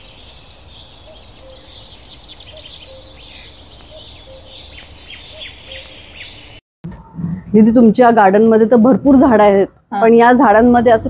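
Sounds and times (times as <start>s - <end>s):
small birds twittering: 0.0s - 6.6s.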